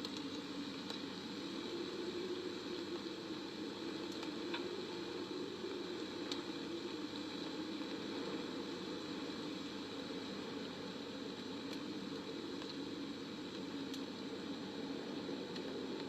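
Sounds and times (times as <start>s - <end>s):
white noise ambience: 0.0s - 16.0s
faint clicks: 13.5s - 14.1s.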